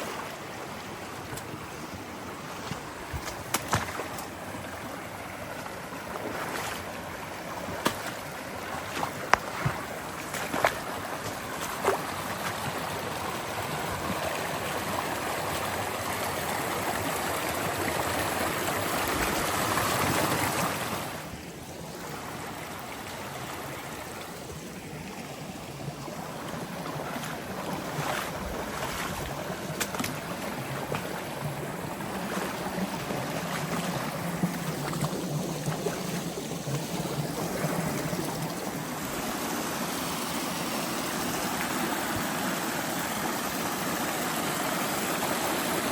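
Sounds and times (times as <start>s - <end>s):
creek water rushing: 0.0s - 45.9s.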